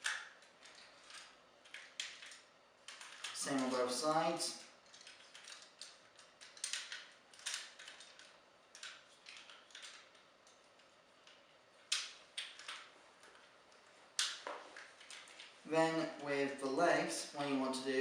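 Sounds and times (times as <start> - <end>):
plastic toy parts clicking: 0.0 - 3.4, 4.8 - 10.6, 11.2 - 13.5.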